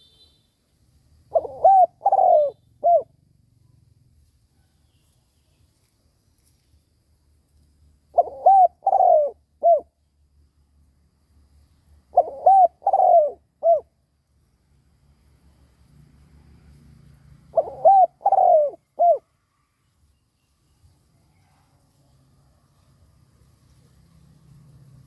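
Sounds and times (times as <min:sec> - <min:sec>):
dove cooing: 0:01.3 - 0:03.2, 0:08.1 - 0:10.0, 0:12.1 - 0:14.0, 0:17.5 - 0:19.3.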